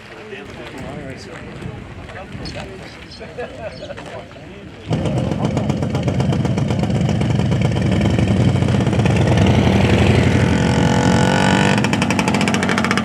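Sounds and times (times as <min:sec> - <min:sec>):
loud vehicle engine running: 0:04.9 - 0:13.0.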